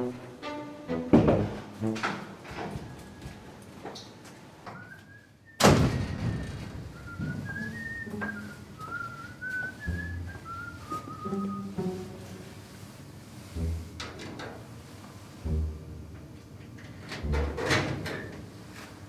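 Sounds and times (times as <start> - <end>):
man whistling a slow tune: 4.7 - 11.8
loud bang: 5.6 - 7.6.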